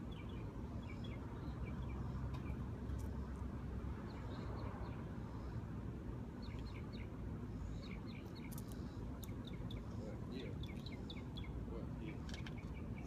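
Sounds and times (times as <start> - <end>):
low outdoor rumble: 0.0 - 13.0
small bird chirping: 6.4 - 13.0.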